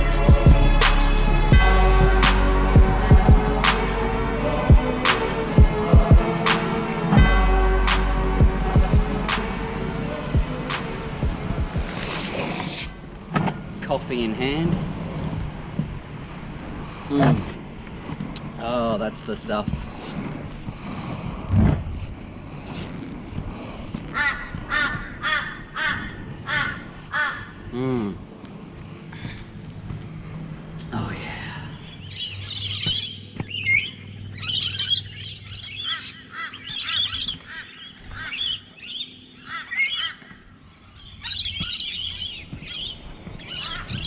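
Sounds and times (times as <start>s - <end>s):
crow cawing: 24.2s - 27.6s.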